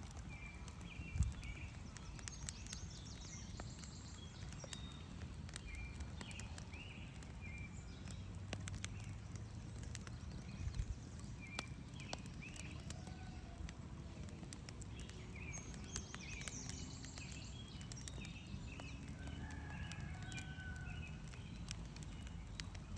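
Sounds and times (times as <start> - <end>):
birds chirping: 0.0 - 22.9
campfire crackling and popping: 0.0 - 22.9.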